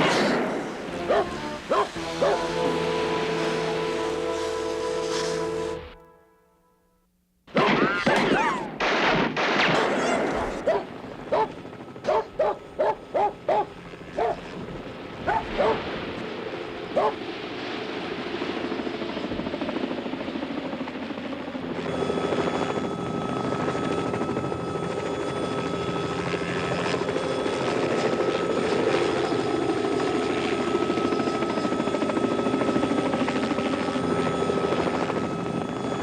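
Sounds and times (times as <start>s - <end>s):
helicopter rotor and engine: 0.0s - 6.0s, 7.6s - 36.0s
steady whine: 0.0s - 36.0s.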